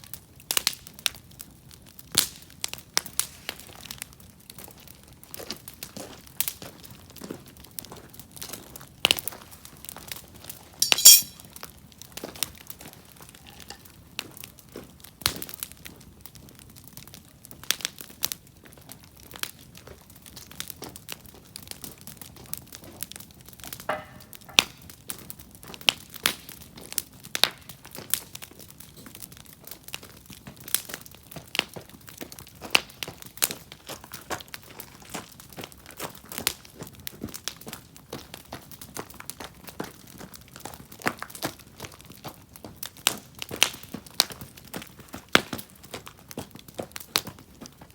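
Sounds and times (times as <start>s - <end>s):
campfire crackling and popping: 24.8s - 47.9s.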